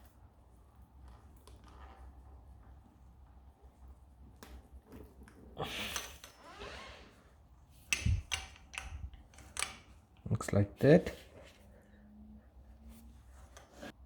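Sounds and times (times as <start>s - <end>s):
tool clicks and knocks: 7.9s - 9.9s.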